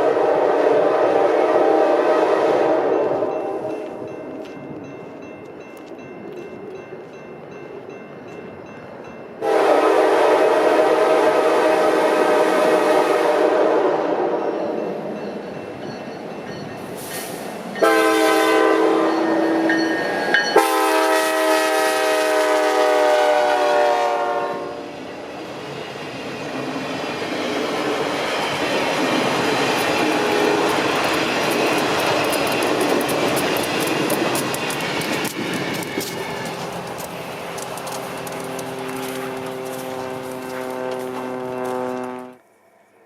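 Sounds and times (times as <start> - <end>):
locomotive air horn chord: 0.0 - 3.8, 9.4 - 14.5, 17.2 - 19.8, 20.5 - 24.9, 38.5 - 42.4
train wheels rumbling on rail: 0.0 - 42.4.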